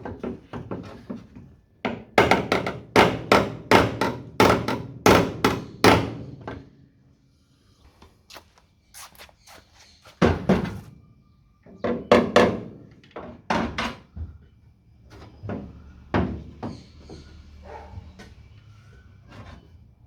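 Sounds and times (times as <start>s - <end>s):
hammer knocking on metal panel: 1.9s - 6.2s.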